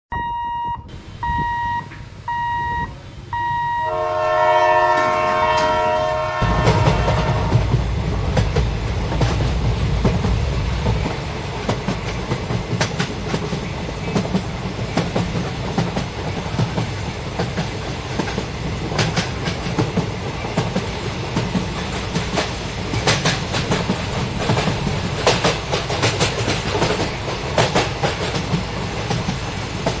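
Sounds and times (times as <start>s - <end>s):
pitched beeps: 0.1s - 3.9s
train passing rumble: 0.9s - 30.0s
train horn chord: 3.8s - 7.8s
wheels clacking over rail joints: 4.8s - 30.0s.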